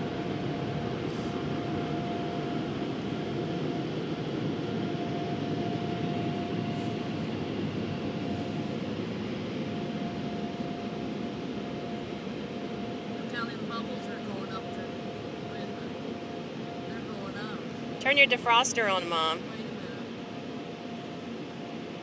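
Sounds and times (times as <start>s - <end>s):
car wash dryer blowers: 0.0s - 3.8s
faint steady whine: 0.0s - 22.0s.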